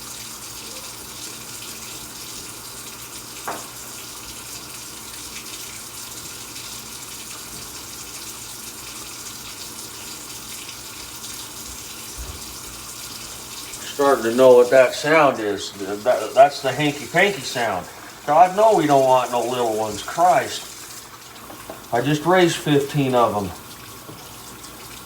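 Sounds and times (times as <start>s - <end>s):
water running from faucet into sink: 0.0s - 25.0s.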